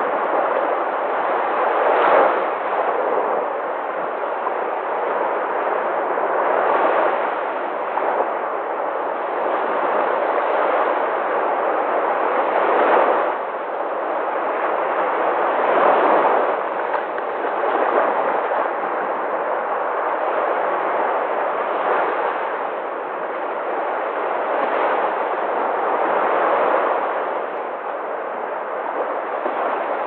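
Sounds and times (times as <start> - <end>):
sea waves surf: 0.0 - 30.0.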